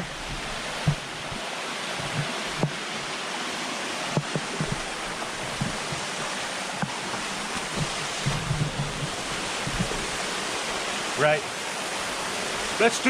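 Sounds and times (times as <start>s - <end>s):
low thumps: 0.0s - 1.4s, 2.0s - 3.1s, 4.1s - 10.4s
waterfall rushing: 0.0s - 13.0s.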